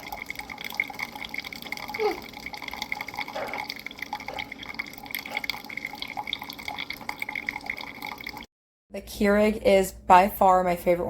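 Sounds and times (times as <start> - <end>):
coffee trickling into a cup: 0.0 - 8.5.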